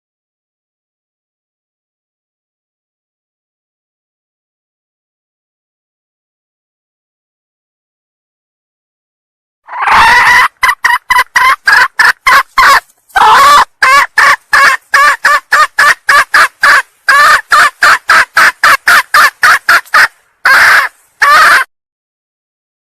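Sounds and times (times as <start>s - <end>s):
hen clucking: 9.7s - 21.7s.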